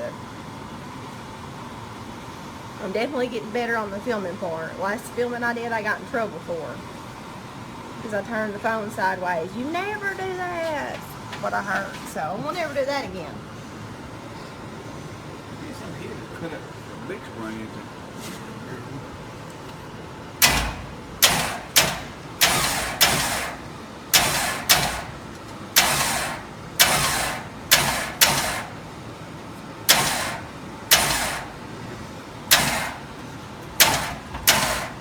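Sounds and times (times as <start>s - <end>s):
sharp hissing bursts: 20.4s - 29.2s, 29.8s - 35.0s.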